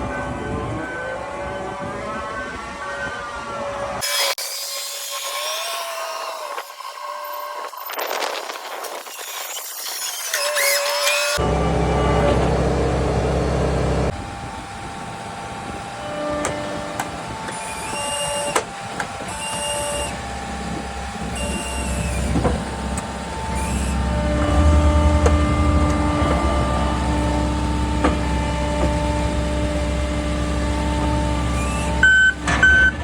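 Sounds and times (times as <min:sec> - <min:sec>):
hydraulic whine: 0:00.0 - 0:33.0
diesel engine running: 0:11.4 - 0:33.0.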